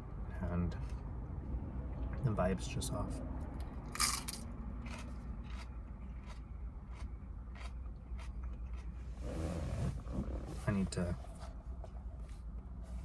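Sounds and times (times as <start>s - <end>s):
chewing crunch: 3.6s - 9.2s
biting crisp lettuce: 4.0s - 9.0s.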